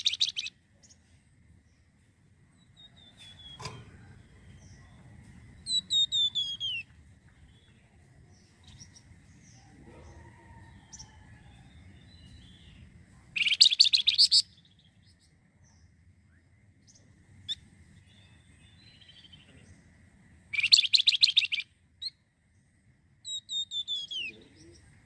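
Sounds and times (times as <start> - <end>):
songbird whistling and chirping: 0.0 - 0.5, 2.6 - 3.6, 4.3 - 9.1, 10.8 - 15.3, 20.5 - 22.2, 23.2 - 24.8.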